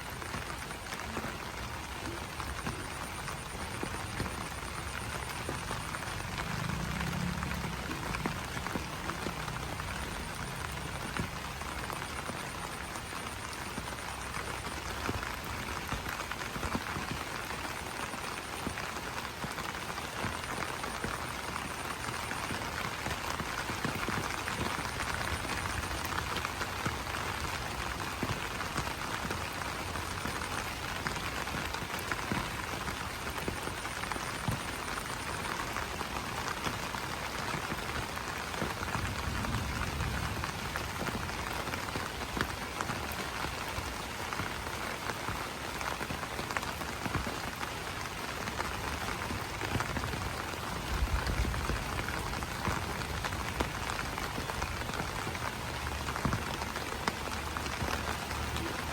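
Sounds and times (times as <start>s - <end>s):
rain pattering on leaves: 0.0s - 58.9s.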